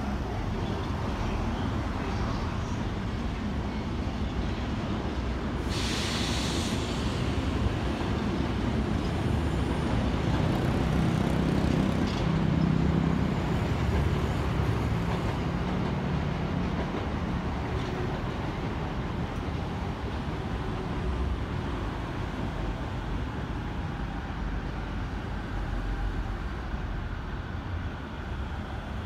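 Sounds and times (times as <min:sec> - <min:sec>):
train wheels rumbling on rails: 0:00.0 - 0:29.0
short burst of hiss: 0:05.6 - 0:07.4.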